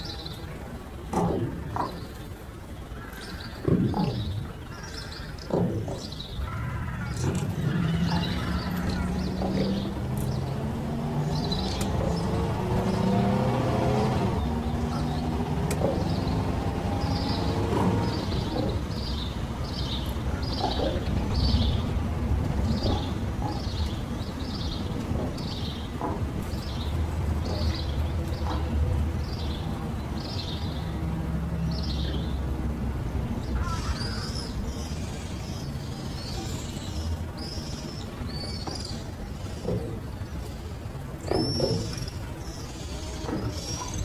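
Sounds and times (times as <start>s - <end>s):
steady low rumble: 6.2s - 38.3s.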